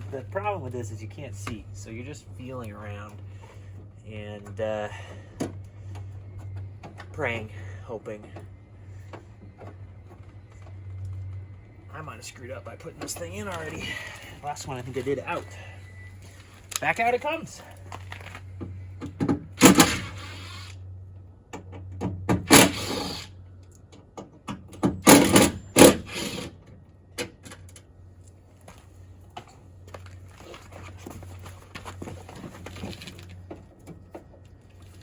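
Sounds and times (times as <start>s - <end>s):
door lock clunks and rattles: 19.0s - 20.2s, 24.0s - 26.5s.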